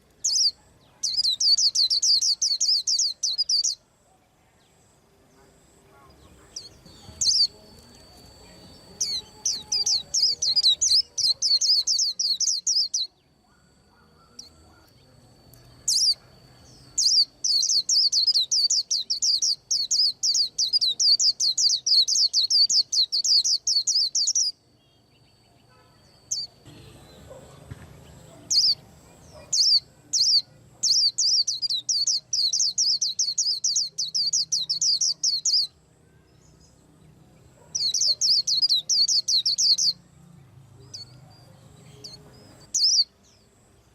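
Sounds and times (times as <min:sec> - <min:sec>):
bird chirping rapidly: 0:00.2 - 0:03.8, 0:06.5 - 0:07.6, 0:08.3 - 0:14.9, 0:15.8 - 0:24.6, 0:28.3 - 0:35.8, 0:37.6 - 0:40.0, 0:42.0 - 0:43.2.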